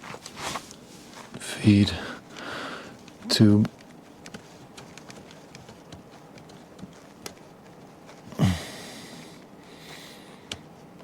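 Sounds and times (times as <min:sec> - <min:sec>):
light clicks and taps: 0:02.4 - 0:08.2, 0:10.4 - 0:11.0.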